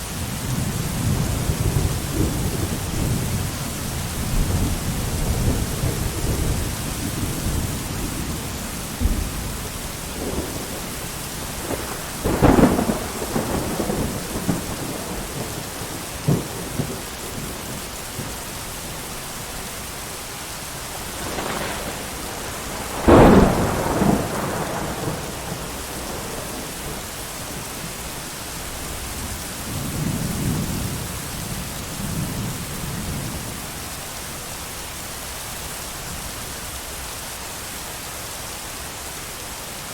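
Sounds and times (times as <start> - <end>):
heavy rain: 0.0 - 39.9
low thunder rumbling: 0.1 - 19.6, 20.8 - 33.6
thunder claps: 4.2 - 18.3, 20.9 - 28.0.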